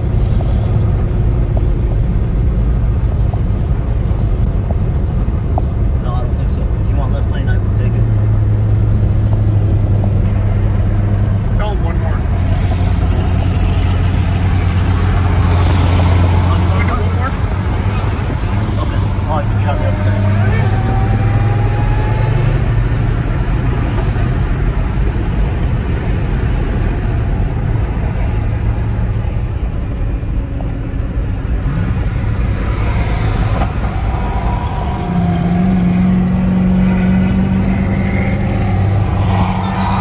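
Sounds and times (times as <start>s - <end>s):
low engine drone: 0.0s - 40.0s
tyre roar: 31.7s - 40.0s.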